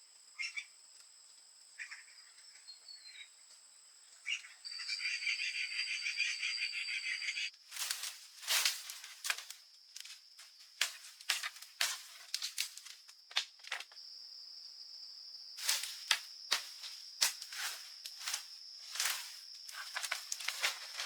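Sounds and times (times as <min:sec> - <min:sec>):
sharp crackles and rustles: 0:07.6 - 0:14.0, 0:15.6 - 0:21.0.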